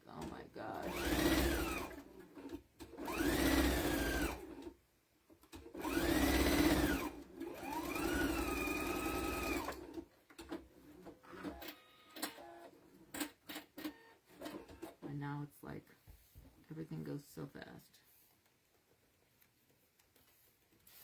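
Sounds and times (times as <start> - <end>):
sewing machine motor whine: 0.8 - 4.7, 5.6 - 10.0.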